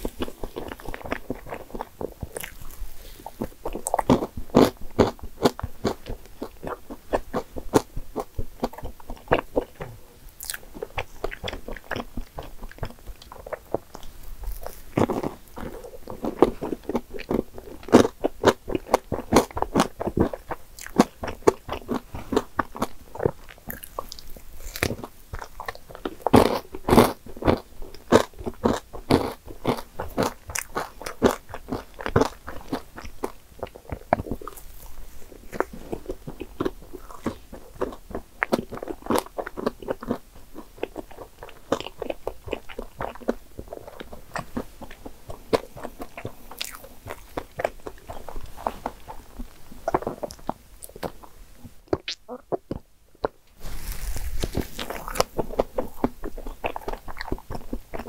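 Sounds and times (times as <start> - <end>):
wet mouth sounds: 0.0 - 58.0
crunching nuts: 53.2 - 58.0.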